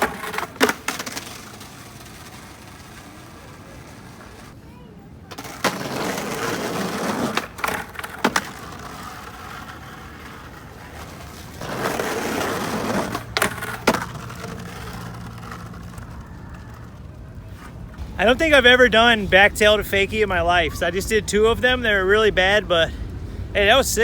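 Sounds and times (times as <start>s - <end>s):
skateboard clacking on ledge: 0.0s - 4.6s, 5.3s - 18.9s
skateboard wheels rolling on wet pavement: 0.0s - 24.0s.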